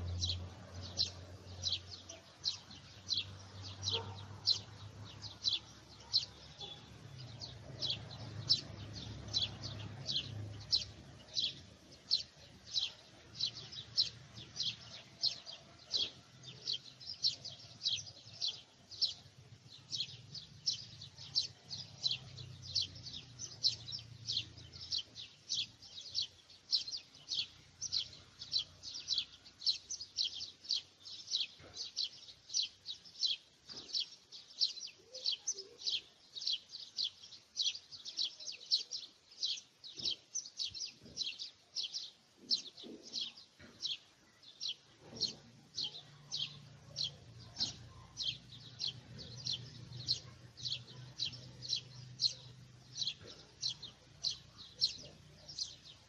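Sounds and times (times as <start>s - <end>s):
bird chirping: 0.0s - 56.0s.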